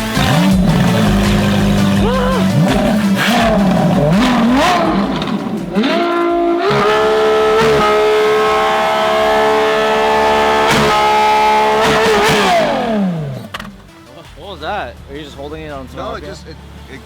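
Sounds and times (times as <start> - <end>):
car engine revving: 0.0 - 17.0
person speaking: 2.0 - 3.2.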